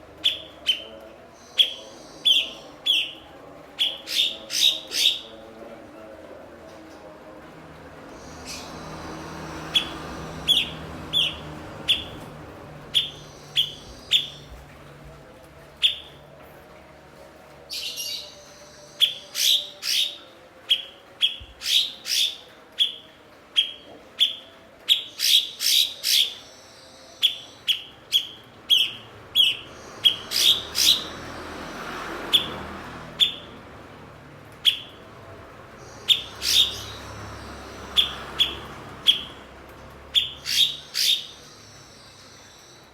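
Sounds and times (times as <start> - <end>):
bird chirping: 8.2 - 15.1, 17.7 - 31.3, 35.8 - 39.4, 40.1 - 42.9.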